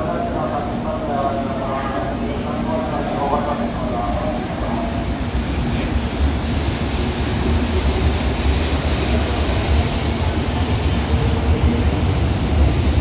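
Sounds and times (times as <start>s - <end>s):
train rushing past: 0.0s - 13.0s.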